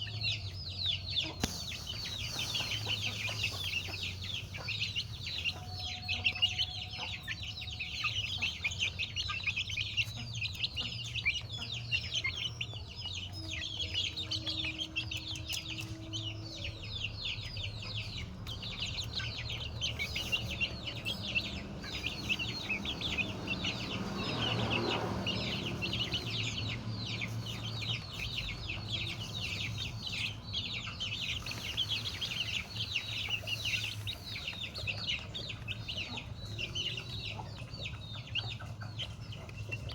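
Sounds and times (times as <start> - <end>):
flock of chickens calling: 0.0 - 39.9.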